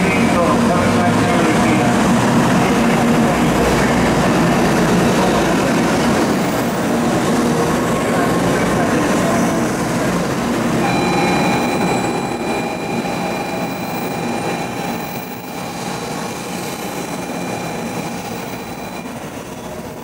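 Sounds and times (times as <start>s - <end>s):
train rolling rumble: 0.0s - 20.0s
high whine: 10.7s - 20.0s.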